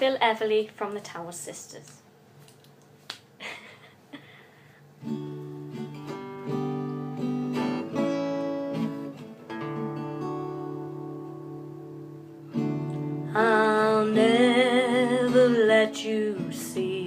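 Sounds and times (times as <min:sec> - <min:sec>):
acoustic guitar strumming chords: 0:05.0 - 0:17.0.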